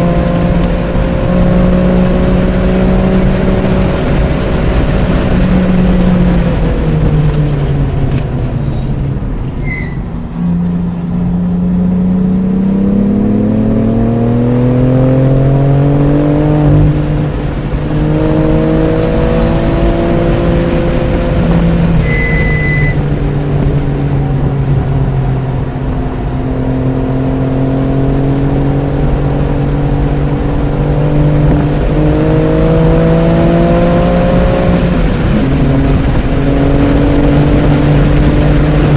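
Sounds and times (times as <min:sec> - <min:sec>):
car engine accelerating: 0:00.0 - 0:38.9
road and wind noise: 0:00.0 - 0:38.9
short electronic beeps: 0:22.0 - 0:23.0.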